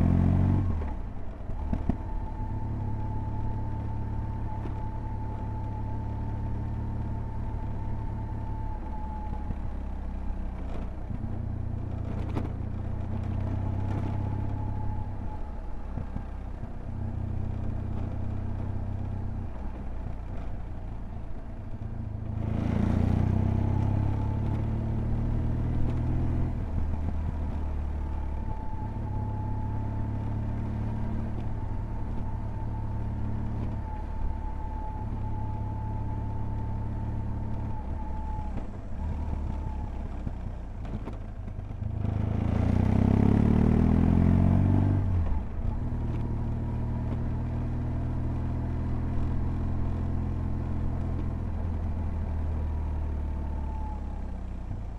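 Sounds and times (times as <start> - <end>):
motorcycle engine revving: 41.9 - 48.2.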